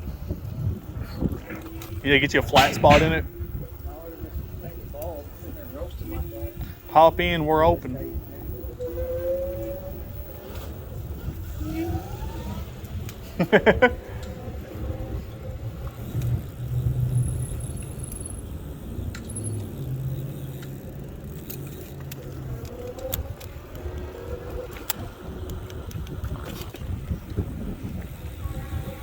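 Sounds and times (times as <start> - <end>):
electric scooter rumbling: 0.0 - 29.0
rattles and clicks: 15.6 - 28.4.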